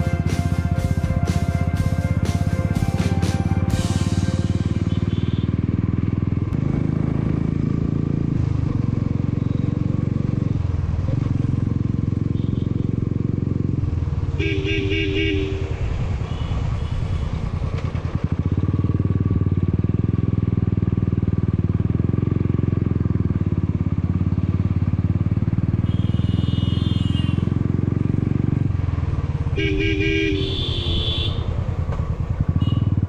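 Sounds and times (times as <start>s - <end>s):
horn honking: 0.0s - 6.0s, 12.2s - 13.0s, 14.3s - 17.2s, 25.7s - 27.7s, 29.4s - 31.7s, 32.5s - 33.0s
motorcycle engine running: 0.0s - 33.0s.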